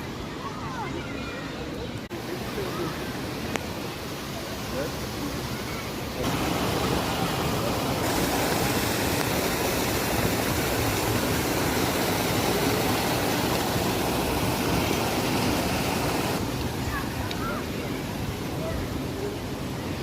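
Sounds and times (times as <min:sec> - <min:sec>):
steady rushing noise: 0:04.0 - 0:20.0.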